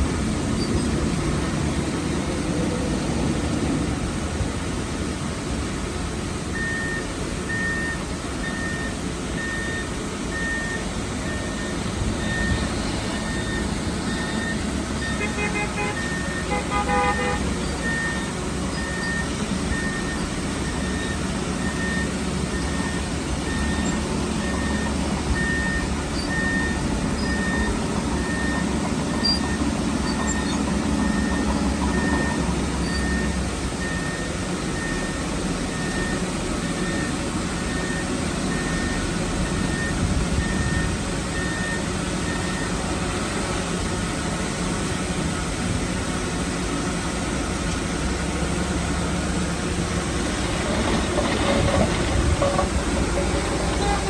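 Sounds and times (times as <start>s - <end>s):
diesel machine rumbling: 0.0s - 54.0s
reversing alarm beeping: 6.6s - 42.8s, 50.8s - 54.0s.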